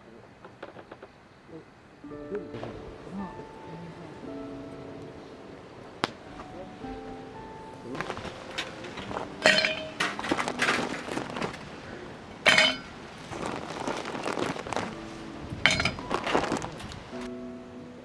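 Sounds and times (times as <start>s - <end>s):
glass clinking: 6.0s - 17.2s.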